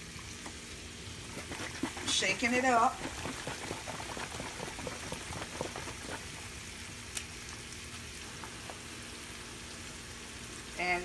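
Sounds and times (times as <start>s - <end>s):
vegetables sizzling in a frying pan: 6.4s - 11.0s.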